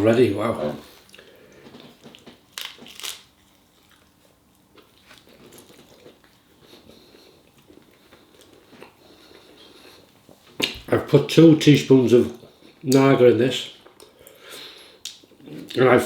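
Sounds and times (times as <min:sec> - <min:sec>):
person chewing food: 0:00.9 - 0:10.9.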